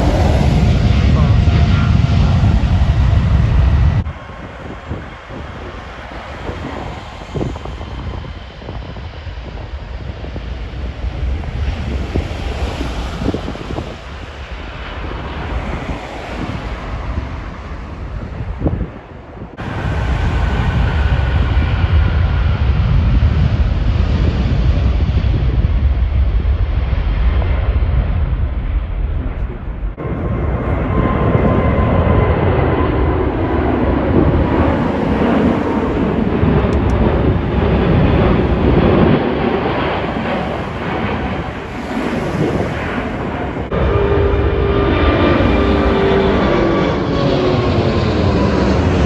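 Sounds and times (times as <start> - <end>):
jet engines rumbling and whining: 0.0 - 49.0
wind buffeting microphone: 0.0 - 49.0.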